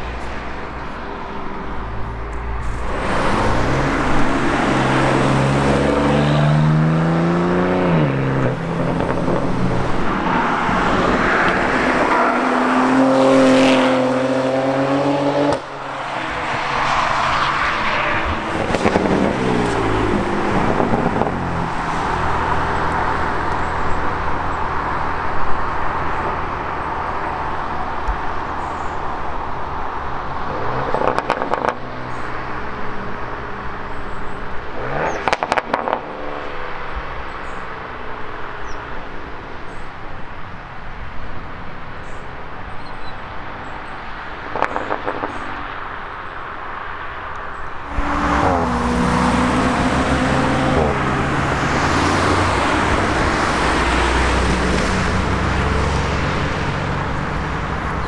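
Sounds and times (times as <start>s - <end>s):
car engine accelerating: 1.4s - 28.2s, 47.8s - 58.0s.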